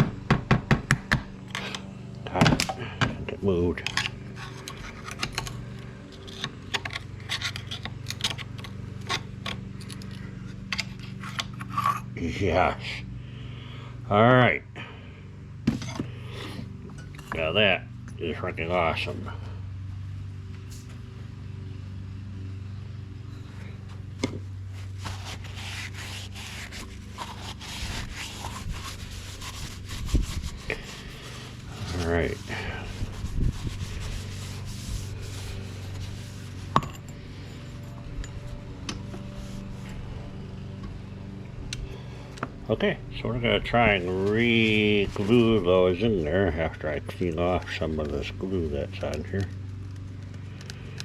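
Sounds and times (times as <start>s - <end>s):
tool tapping and scraping metal: 0.0s - 12.1s, 15.7s - 17.5s, 34.1s - 39.3s
steady low hum: 0.0s - 51.0s
scraping and rubbing strokes: 3.8s - 12.2s, 23.3s - 40.5s, 43.4s - 48.1s.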